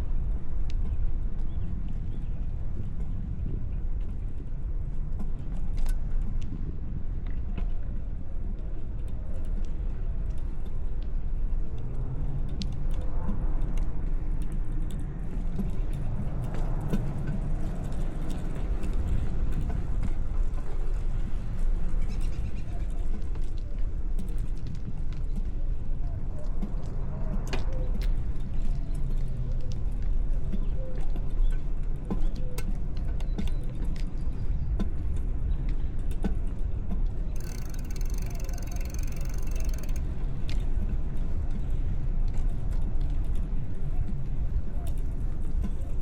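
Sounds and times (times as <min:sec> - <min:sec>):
bicycle riding rumble: 0:00.0 - 0:32.2, 0:36.0 - 0:45.9
light clicks and rattles: 0:37.4 - 0:40.6.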